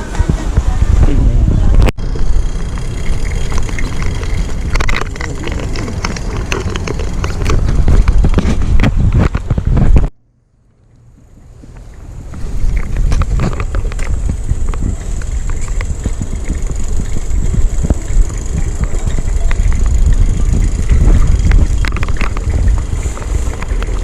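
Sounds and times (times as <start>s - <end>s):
wind rumble on microphone: 0.0s - 24.0s
clicks and rattles: 2.7s - 9.7s, 12.7s - 24.0s.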